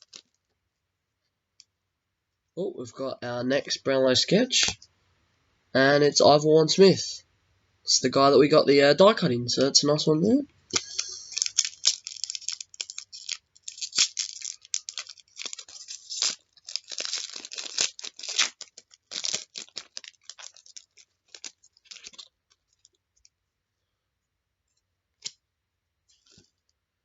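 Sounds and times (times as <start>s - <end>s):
card pack wrapper tearing: 0.0s - 0.4s, 10.7s - 23.0s.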